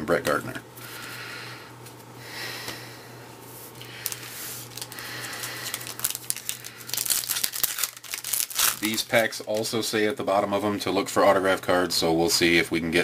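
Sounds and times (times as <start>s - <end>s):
card pack wrapper crinkling: 3.8s - 9.8s.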